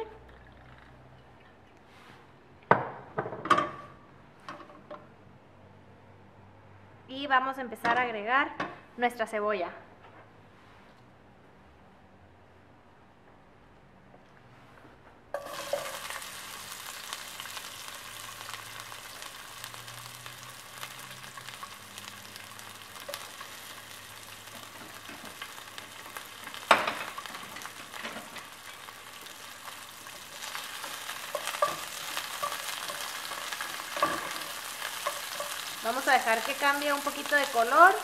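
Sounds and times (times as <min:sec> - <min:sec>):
onion sizzling in oil: 0:15.4 - 0:38.0.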